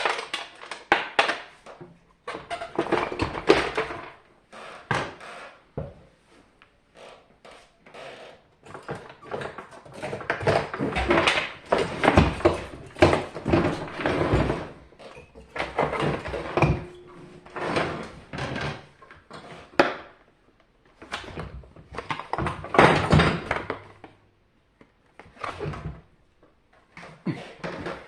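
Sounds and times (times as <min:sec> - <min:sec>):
knocks and clatters of casing: 0:00.0 - 0:04.2, 0:08.7 - 0:20.0, 0:21.0 - 0:24.1.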